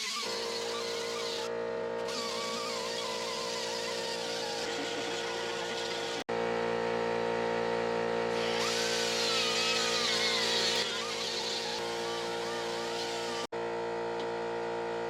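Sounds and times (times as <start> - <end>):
air die grinder grinding metal: 0.0 - 6.3, 8.3 - 13.5.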